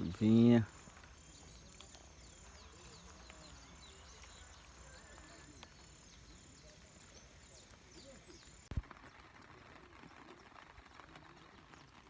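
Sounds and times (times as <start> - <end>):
quiet falling chirps: 0.0 - 9.2
distant voices: 0.0 - 12.0.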